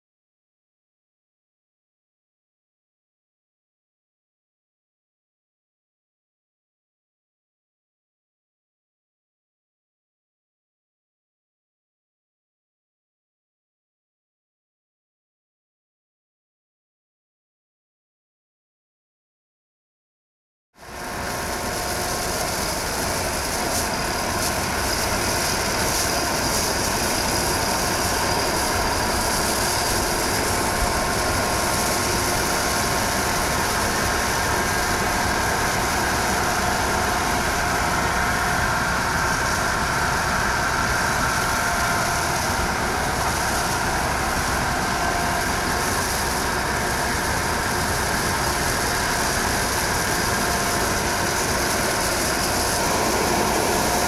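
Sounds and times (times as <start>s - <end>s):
mechanical whine: 20.8s - 54.0s
truck engine running: 21.0s - 54.0s.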